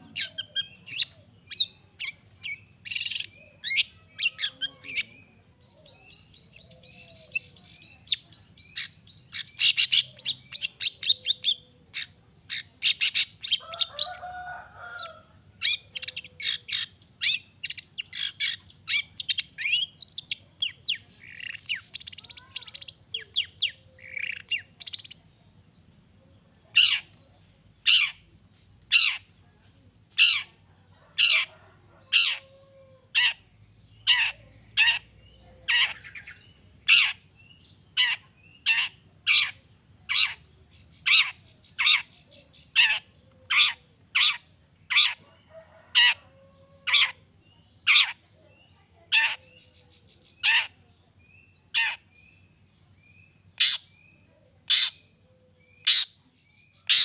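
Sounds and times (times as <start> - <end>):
bird chattering song: 0.0 - 14.2, 14.8 - 29.5, 30.1 - 57.0
harsh bird squawk: 31.2 - 32.4, 38.0 - 40.4, 41.0 - 46.2, 46.8 - 47.2, 53.6 - 53.9, 54.7 - 55.1, 55.8 - 56.2, 56.8 - 57.0.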